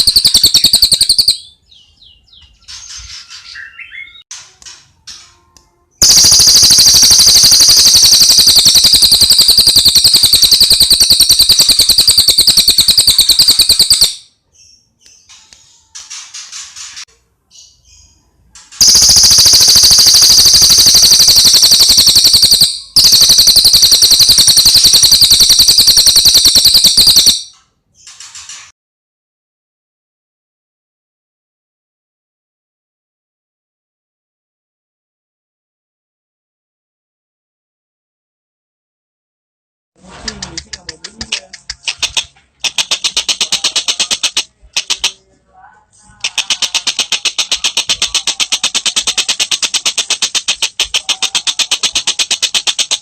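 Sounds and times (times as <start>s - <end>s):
bird trilling: 0.0s - 1.6s, 6.0s - 14.2s, 18.8s - 27.5s.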